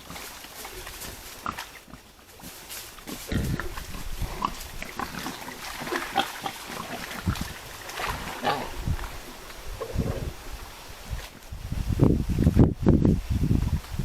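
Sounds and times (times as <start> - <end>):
wild boars grunting: 0.0 - 10.8.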